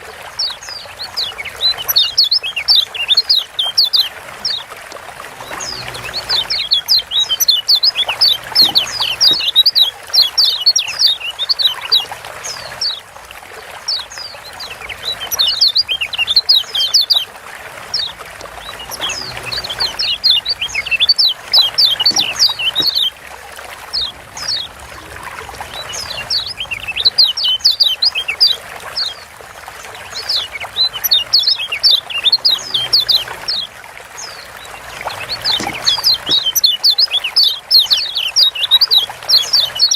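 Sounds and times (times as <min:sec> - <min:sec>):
bird chirping high and sharp: 0:05.6 - 0:12.6, 0:18.9 - 0:23.1, 0:35.0 - 0:39.9.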